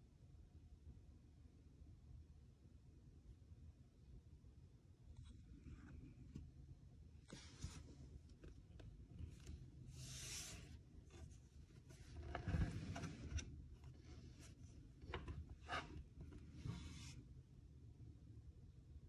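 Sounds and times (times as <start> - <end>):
light rubbing and rustling: 7.2 - 17.3.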